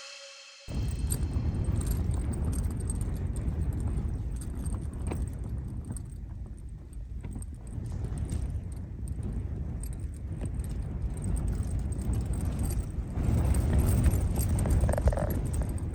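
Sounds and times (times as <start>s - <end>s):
music track: 0.0s - 0.8s
wind rumbling on microphone: 0.0s - 15.9s.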